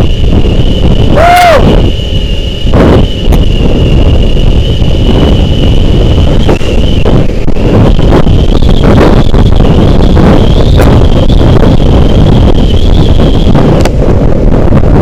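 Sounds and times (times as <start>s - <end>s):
motorcycle running: 0.0s - 15.0s
road noise: 0.0s - 15.0s
thin high whine: 0.0s - 15.0s
wind buffeting microphone: 0.0s - 15.0s.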